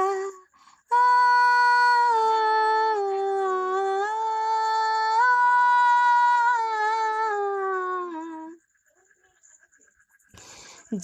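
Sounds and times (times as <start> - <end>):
woman singing wordless melody: 0.0 - 8.6.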